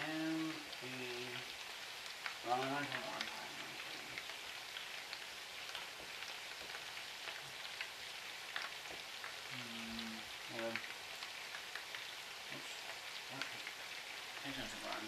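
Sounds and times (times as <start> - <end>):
meatballs sizzling in a pan: 0.0 - 15.0
hot fat crackling pops: 4.0 - 15.0.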